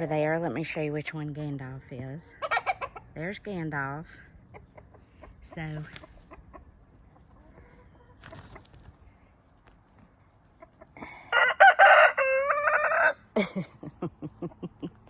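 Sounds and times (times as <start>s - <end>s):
chicken clucking: 2.0s - 3.6s, 4.3s - 9.0s, 10.3s - 11.0s
rooster crowing: 11.3s - 13.2s.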